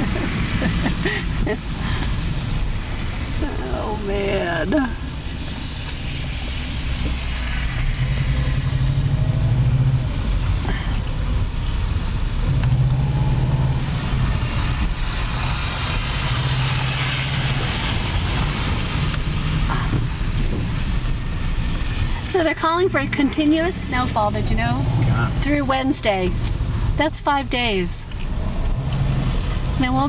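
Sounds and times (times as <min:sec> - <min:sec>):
low engine hum: 0:00.0 - 0:30.0
tyre and road noise: 0:00.0 - 0:30.0.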